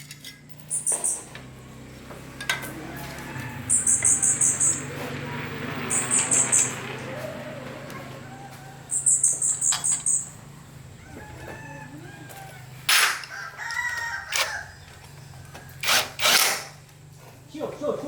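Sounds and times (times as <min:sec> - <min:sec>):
rooster crowing: 0:02.5 - 0:04.6, 0:06.7 - 0:09.3, 0:10.4 - 0:16.1.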